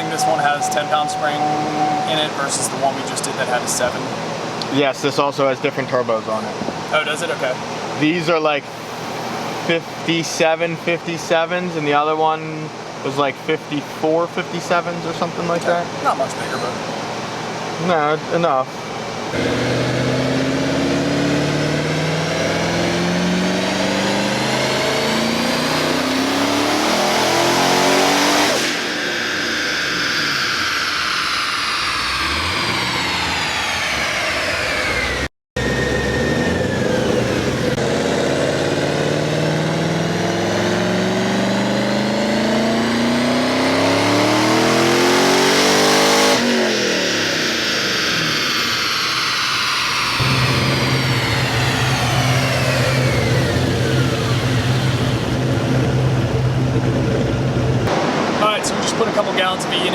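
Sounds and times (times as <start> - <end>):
car engine at full throttle: 0.0 - 4.7, 19.1 - 59.9.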